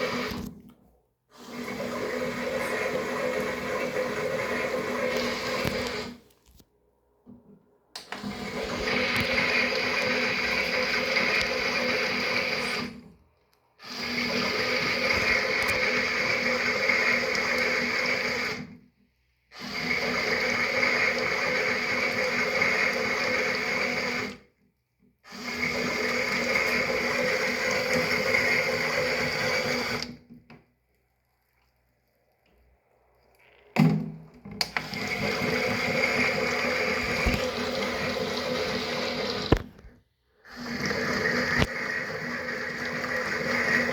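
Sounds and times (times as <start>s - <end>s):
toy washing machine motor humming: 0.0s - 0.5s, 1.4s - 6.2s, 8.1s - 13.0s, 13.8s - 18.7s, 19.6s - 24.4s, 25.3s - 30.2s, 34.6s - 39.6s, 40.5s - 43.9s.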